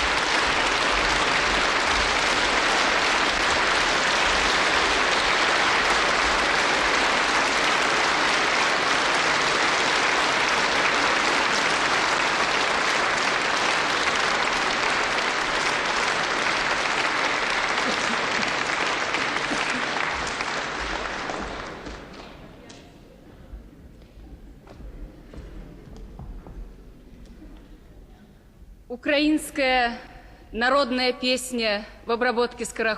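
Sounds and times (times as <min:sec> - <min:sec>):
audience applauding: 0:00.0 - 0:22.9.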